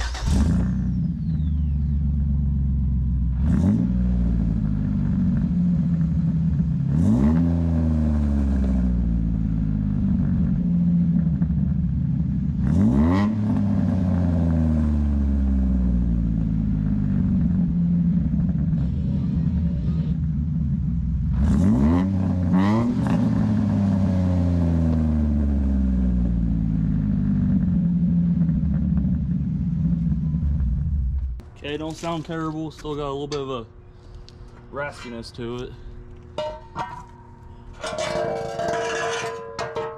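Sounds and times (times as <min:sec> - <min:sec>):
car engine idling and revving: 0:00.0 - 0:31.5.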